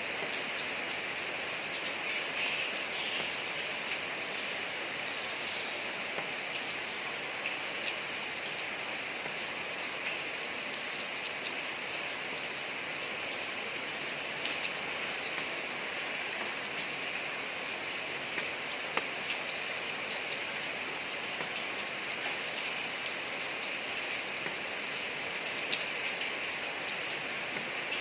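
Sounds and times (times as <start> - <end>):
steady rain on a street: 0.0 - 28.0
raindrop splashes: 14.3 - 28.0.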